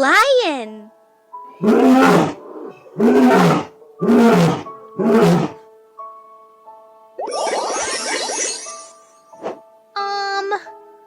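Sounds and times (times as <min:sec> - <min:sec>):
lion roaring: 0:01.6 - 0:05.6.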